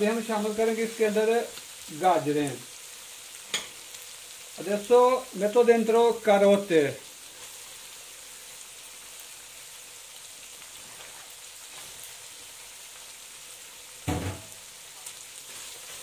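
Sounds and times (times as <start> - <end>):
vegetables and chicken sizzling: 0.0 - 16.0
brief knock: 14.1 - 14.5.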